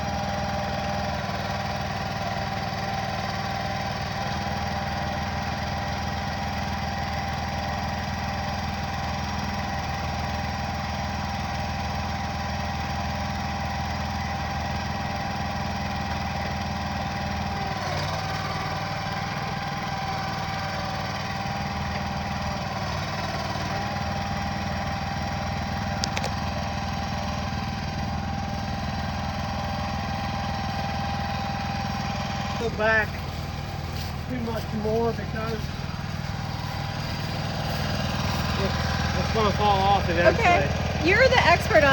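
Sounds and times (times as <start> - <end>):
engine running: 0.0 - 41.9.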